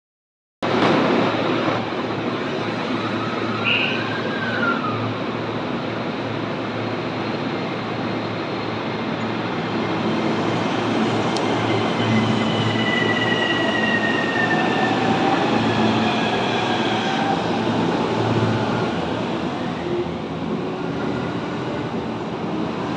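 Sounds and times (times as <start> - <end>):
train wheels rumbling on rail: 0.6 - 22.9.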